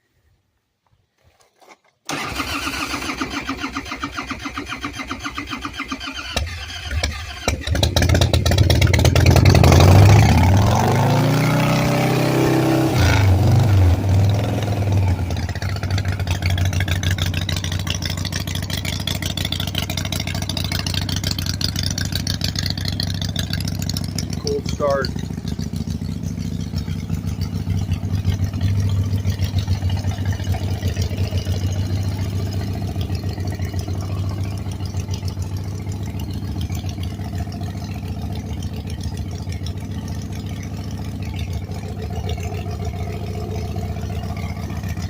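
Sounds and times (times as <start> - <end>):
starter motor cranking: 2.1 - 9.1
motorcycle engine revving and idling: 2.9 - 45.0.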